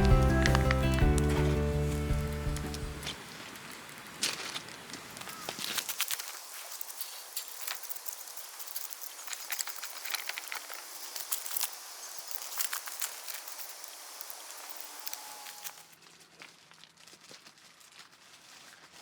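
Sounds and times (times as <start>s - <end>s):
wood fire crackling: 0.0s - 16.0s
fire hissing: 6.0s - 16.0s.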